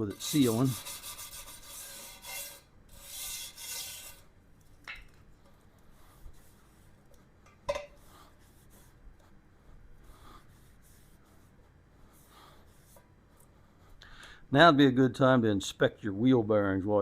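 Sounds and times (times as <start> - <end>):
wire brush scrubbing metal rim: 0.0 - 4.3.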